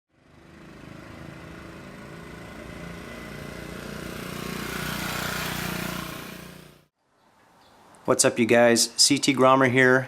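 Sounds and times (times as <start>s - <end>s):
motorcycle engine idling: 0.1s - 6.9s.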